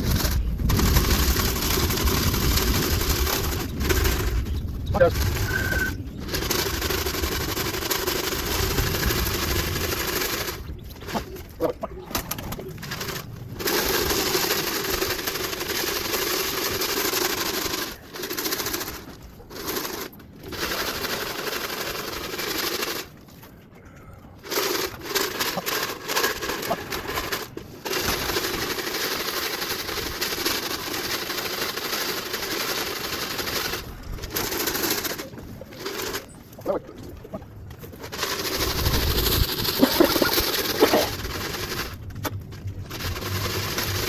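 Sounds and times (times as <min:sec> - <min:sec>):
grain rattling in a shaken can: 0:12.4 - 0:23.2, 0:24.5 - 0:36.3, 0:38.0 - 0:44.0.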